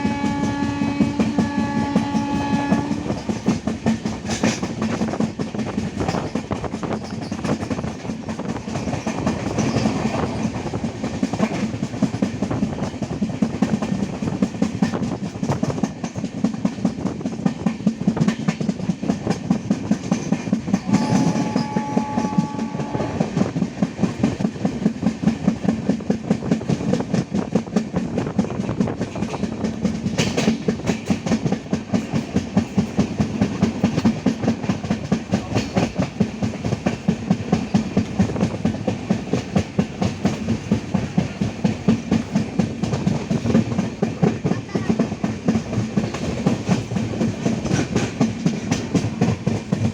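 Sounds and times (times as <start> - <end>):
distant two-tone train horn: 0.0 - 3.4, 20.8 - 23.4
train wheels clacking over rail joints: 0.0 - 49.9.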